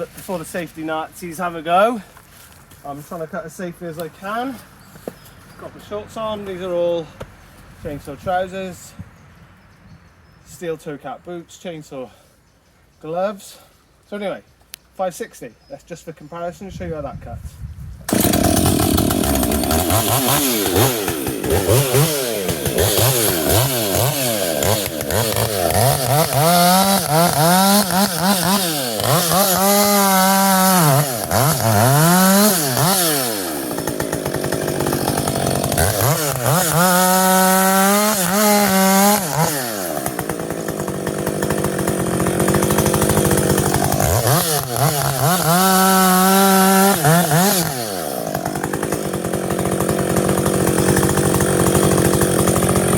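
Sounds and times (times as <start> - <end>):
chainsaw revving and cutting wood: 18.1 - 52.9.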